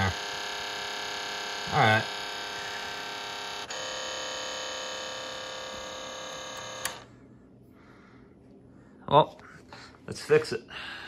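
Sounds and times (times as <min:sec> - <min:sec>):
electrical mains buzz: 0:00.0 - 0:07.3
switch click: 0:06.5 - 0:07.1.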